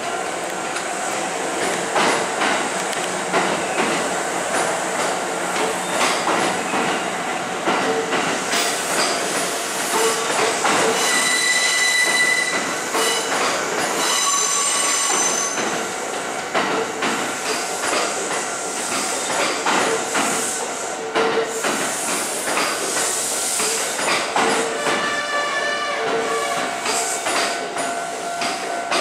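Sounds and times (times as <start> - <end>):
high-pitched wheel squeal: 11.0 - 13.3, 14.0 - 15.6.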